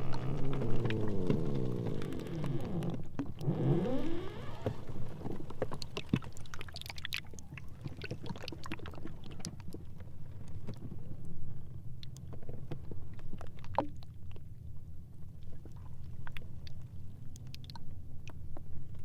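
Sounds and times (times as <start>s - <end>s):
ice squealing: 0.0s - 5.4s
ice floes grinding: 0.0s - 5.6s
ice crackles and clicks: 0.0s - 7.2s
low steady rumble: 0.0s - 19.0s.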